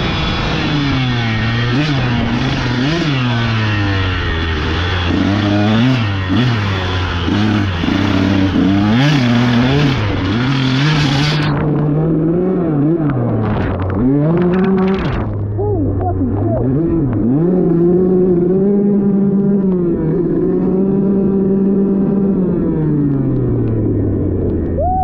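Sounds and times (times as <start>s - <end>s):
dirt bike engine revving: 0.0s - 24.7s.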